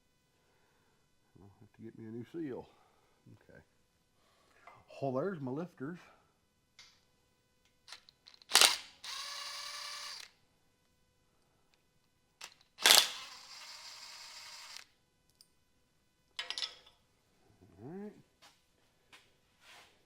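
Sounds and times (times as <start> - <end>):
small motor whirring: 8.4 - 10.4, 12.4 - 14.9.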